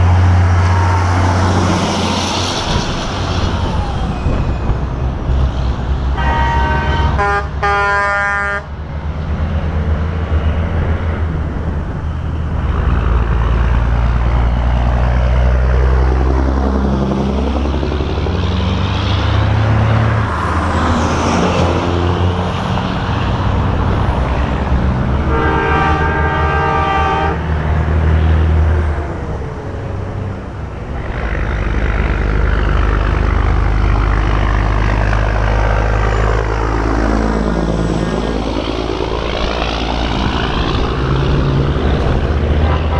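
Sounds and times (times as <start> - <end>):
trucks driving past: 0.0 - 42.9
air horn blast: 6.2 - 8.7, 25.2 - 27.5.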